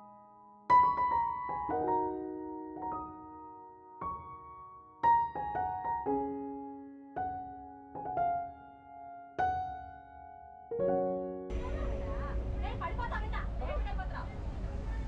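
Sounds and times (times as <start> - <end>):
slow piano notes and chords: 0.0 - 14.9.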